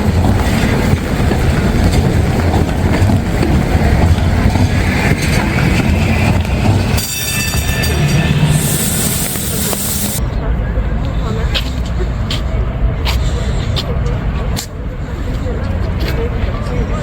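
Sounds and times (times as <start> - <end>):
vehicle wheels on wet street: 0.0 - 10.2
high steady hiss: 8.4 - 10.2.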